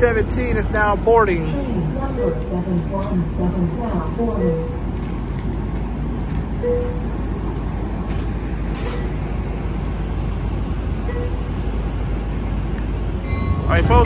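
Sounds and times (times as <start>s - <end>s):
diesel locomotive idling: 0.0s - 14.0s
faint short tone: 13.2s - 14.0s.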